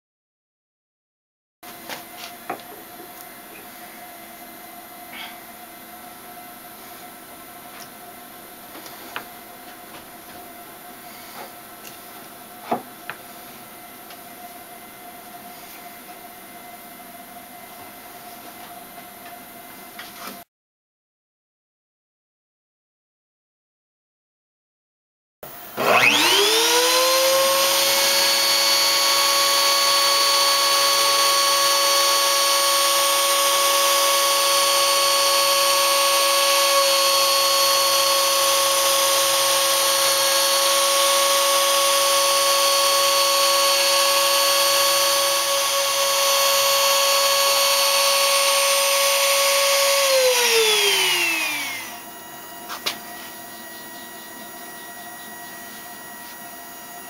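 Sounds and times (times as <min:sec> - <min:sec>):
faint hum: 0:02.3 - 0:09.7
router spindle motor whine: 0:25.5 - 0:57.0.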